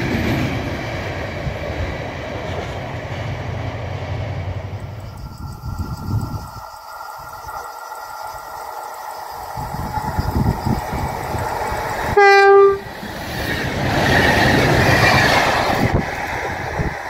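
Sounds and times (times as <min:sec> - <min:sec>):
train running rumble: 0:00.0 - 0:17.0
train horn blast: 0:12.1 - 0:13.0.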